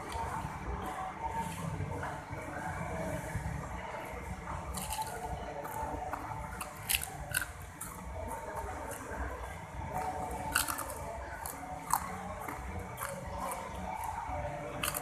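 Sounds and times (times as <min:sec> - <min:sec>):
wet chewing of crispy fish: 0:06.6 - 0:07.9, 0:10.5 - 0:12.2, 0:14.8 - 0:15.0.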